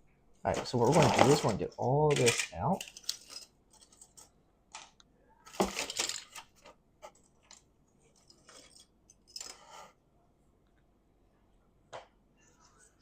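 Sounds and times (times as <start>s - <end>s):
miniatures clicking and clinking: 0.9s - 6.5s.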